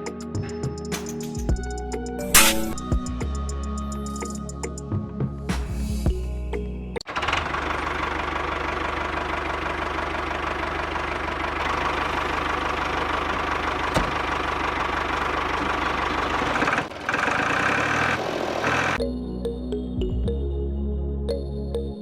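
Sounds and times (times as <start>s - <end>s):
sharp click: 2.2s - 2.9s.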